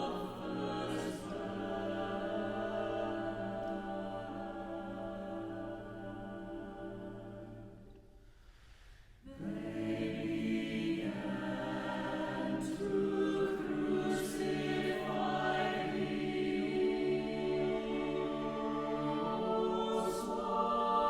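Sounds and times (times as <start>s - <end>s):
choir singing sustained chords: 0.0s - 8.3s, 9.2s - 21.0s.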